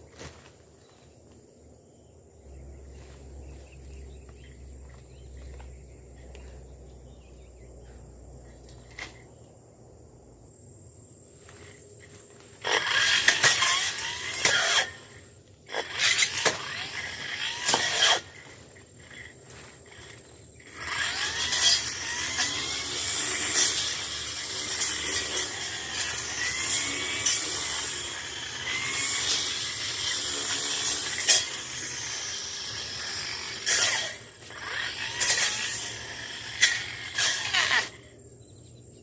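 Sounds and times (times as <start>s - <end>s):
undergrowth rustling and crackling: 0.0s - 1.4s, 16.6s - 22.6s.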